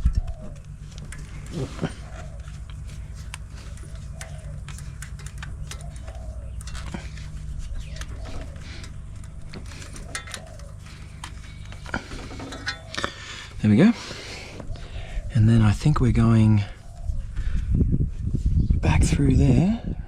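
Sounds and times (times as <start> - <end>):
clicks and rustles of wiring: 0.0 - 13.2
bird cooing: 0.0 - 15.6, 16.4 - 17.6
steady low hum: 0.0 - 20.0.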